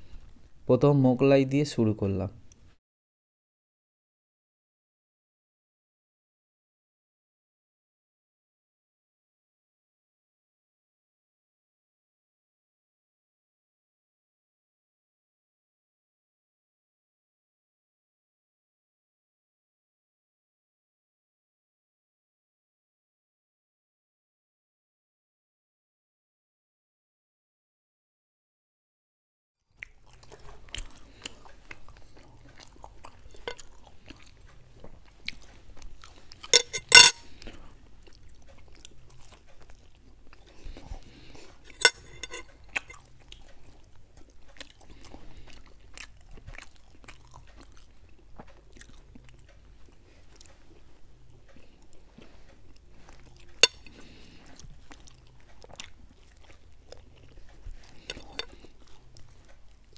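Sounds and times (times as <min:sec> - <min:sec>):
chewing and crunching food: 0:29.7 - 0:59.9.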